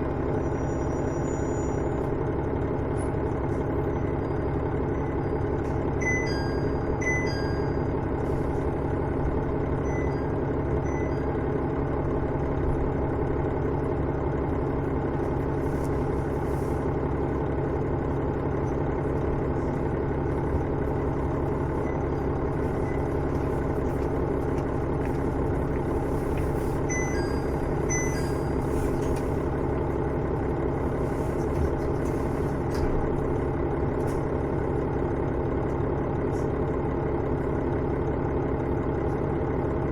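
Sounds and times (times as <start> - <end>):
diesel railcar engine droning: 0.0 - 39.9
short high chirping tones: 26.9 - 28.8.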